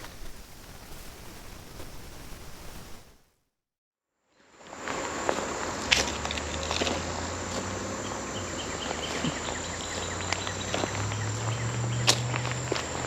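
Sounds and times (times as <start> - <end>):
insects buzzing: 4.4 - 13.0.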